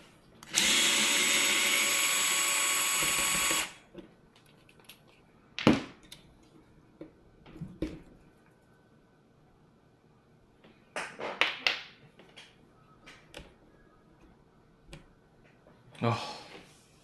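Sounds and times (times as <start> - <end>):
power driver running: 0.5 - 3.8
clicks of small parts handled: 4.4 - 5.2.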